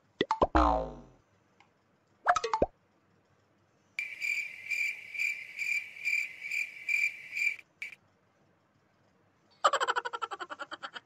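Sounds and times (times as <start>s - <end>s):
cricket chirping: 4.0s - 10.2s.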